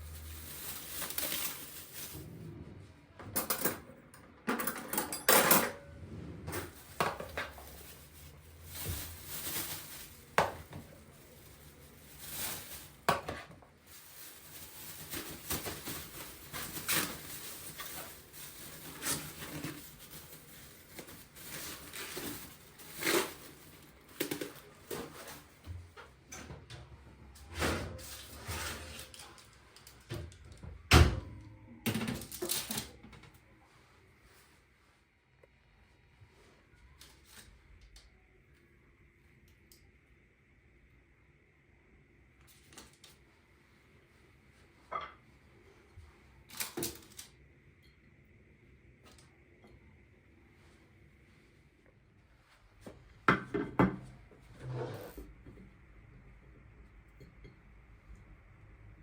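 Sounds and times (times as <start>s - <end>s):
dishes and cutlery clinking: 3.2s - 5.9s.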